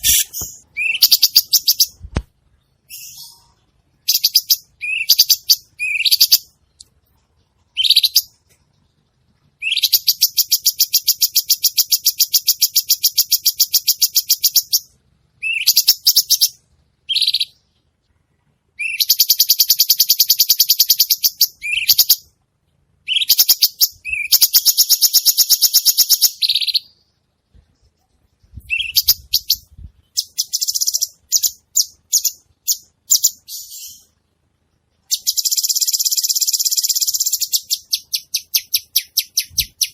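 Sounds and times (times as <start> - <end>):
bird chattering: 0.0 - 2.0
bird singing rapid trills: 0.0 - 2.0, 2.6 - 6.8, 7.7 - 8.4, 9.6 - 17.6, 18.8 - 22.3, 23.0 - 27.2, 28.6 - 34.2, 35.0 - 39.9.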